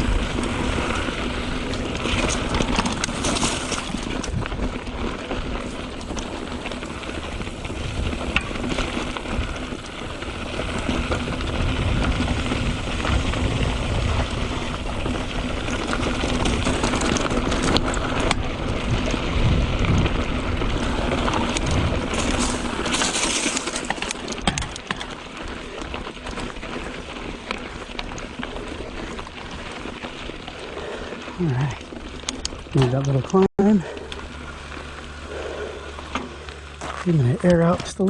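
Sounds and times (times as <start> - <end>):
bike rattling: 0.0 - 38.0
bike tyres crunching on dirt: 0.0 - 38.0
heavy low rumble: 30.4 - 38.0.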